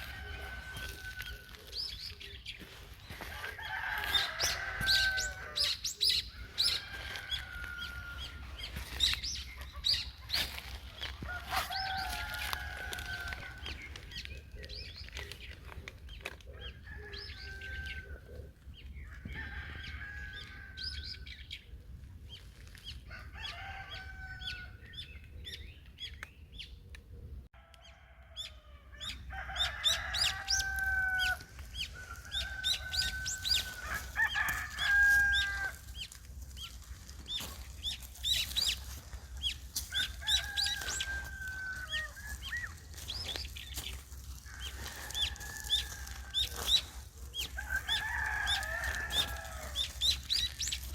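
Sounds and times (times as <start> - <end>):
chickens crowing: 0.0 - 15.4, 16.4 - 21.3, 22.6 - 24.9, 27.6 - 50.9
small birds chirping: 0.0 - 19.3, 29.9 - 50.9.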